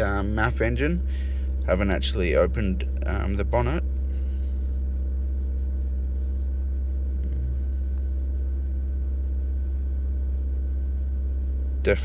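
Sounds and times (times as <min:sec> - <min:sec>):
car engine running steadily: 0:00.0 - 0:12.0.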